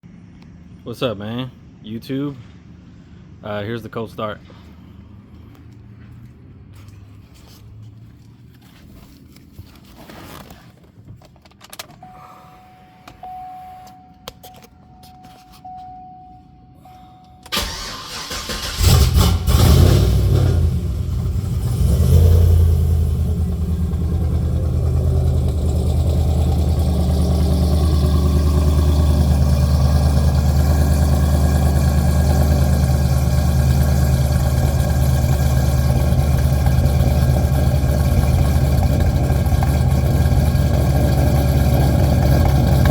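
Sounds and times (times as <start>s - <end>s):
faint steady tone: 12.0s - 17.6s
car engine cold starting: 16.9s - 42.9s.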